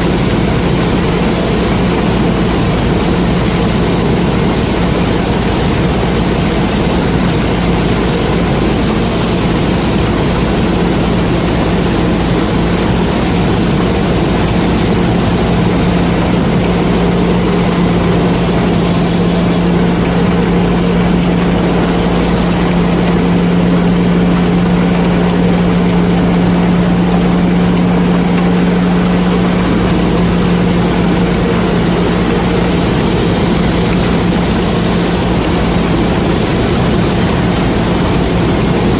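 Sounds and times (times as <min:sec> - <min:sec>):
combine harvester engine drone: 0:00.0 - 0:38.9
machinery hiss: 0:16.4 - 0:19.7.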